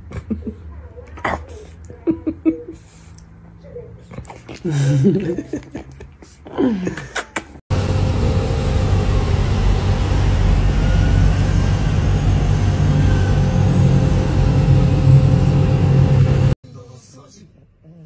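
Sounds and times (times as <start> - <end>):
loud mechanical drone: 7.7 - 16.6.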